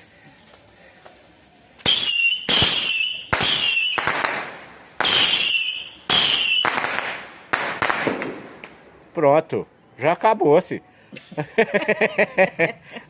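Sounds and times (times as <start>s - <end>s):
firework bursts with hissing tails: 1.7s - 8.8s.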